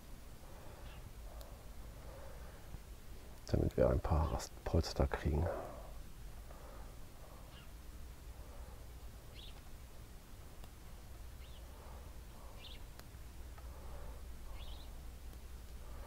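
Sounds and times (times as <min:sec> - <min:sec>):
steady low hum: 0:00.0 - 0:16.0
small bird chirping: 0:00.7 - 0:01.6, 0:07.2 - 0:07.8, 0:09.2 - 0:09.7, 0:11.3 - 0:13.1, 0:14.5 - 0:15.0
small clicks: 0:01.3 - 0:01.6.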